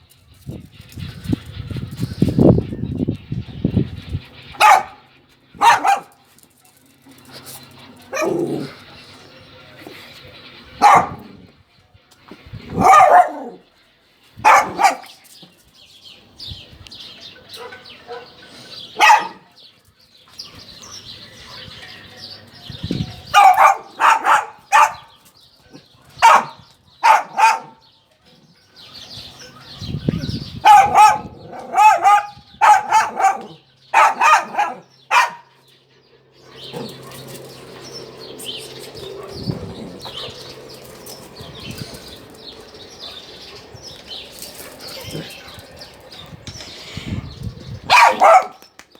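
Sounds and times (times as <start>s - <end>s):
dog barking: 4.6s - 5.0s, 5.6s - 6.2s, 10.8s - 11.4s, 12.7s - 13.6s, 14.4s - 15.1s, 17.6s - 18.4s, 19.0s - 19.5s, 23.3s - 25.1s, 26.2s - 27.8s, 30.6s - 35.5s, 47.9s - 48.6s.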